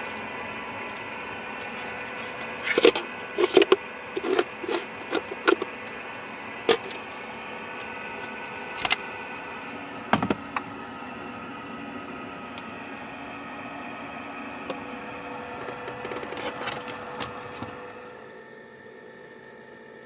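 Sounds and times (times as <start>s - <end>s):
steady low hum: 0.0s - 19.5s
hard objects knocking and clacking: 2.7s - 5.7s, 6.7s - 7.2s, 10.2s - 10.4s.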